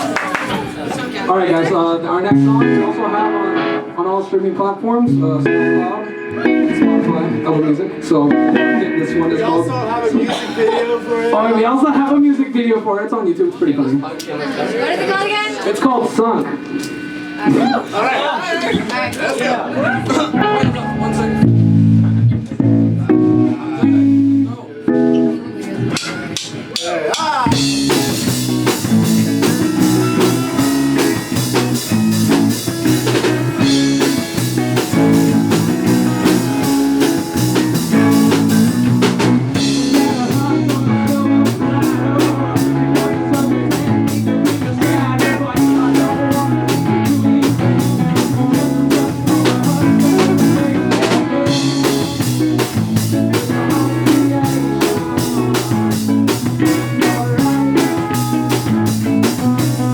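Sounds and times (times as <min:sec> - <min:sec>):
rock band playing live: 0:00.0 - 0:04.1, 0:05.0 - 0:11.6, 0:20.0 - 0:59.9
guitar: 0:00.0 - 0:59.9
drum kit: 0:25.1 - 0:59.9.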